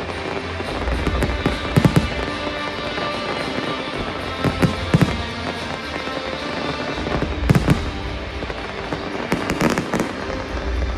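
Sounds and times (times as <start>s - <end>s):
music: 0.0s - 10.9s.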